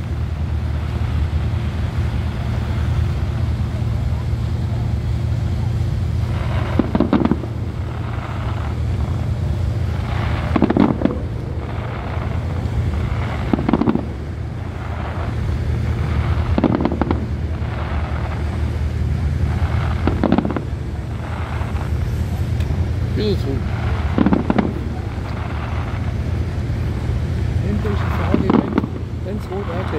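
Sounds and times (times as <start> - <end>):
boat engine drone: 0.0 - 29.9
distant fireworks booming: 0.0 - 29.9.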